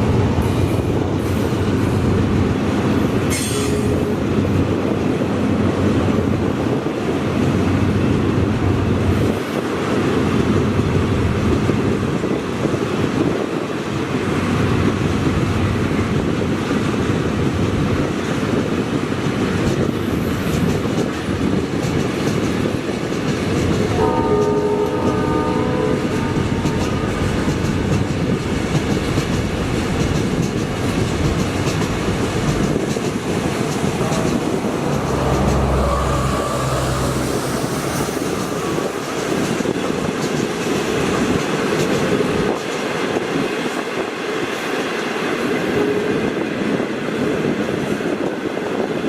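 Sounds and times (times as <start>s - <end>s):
train rumbling on rails: 0.0s - 49.0s
train horn: 23.8s - 27.3s, 45.7s - 46.4s.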